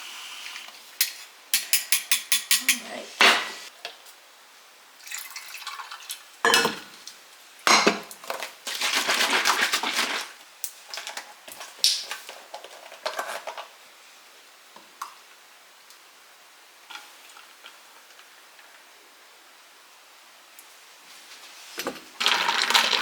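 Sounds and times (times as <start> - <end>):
dishes and utensils clattering: 6.5 - 6.9, 7.7 - 8.4.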